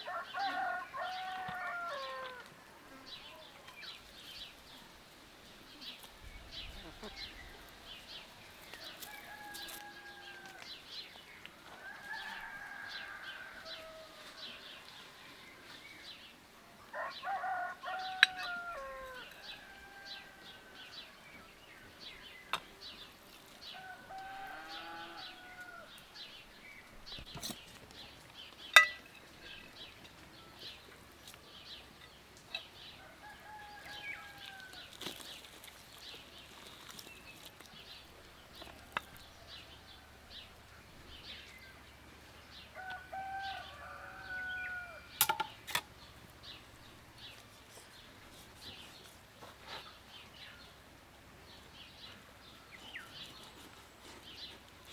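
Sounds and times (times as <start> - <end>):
rooster crowing: 0.0 - 2.4, 8.8 - 10.7, 11.7 - 14.7, 16.9 - 21.1, 23.7 - 25.9, 33.0 - 34.9, 42.7 - 45.1.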